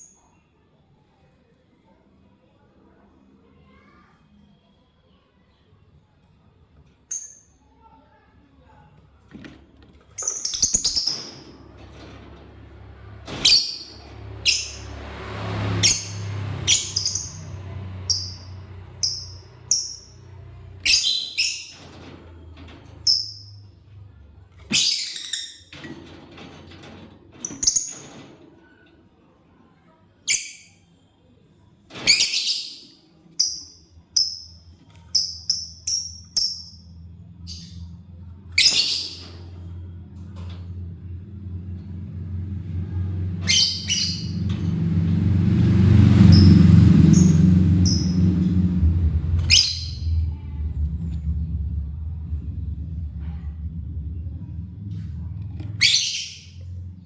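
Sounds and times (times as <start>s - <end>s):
faint low steady hum: 48.8s - 57.0s.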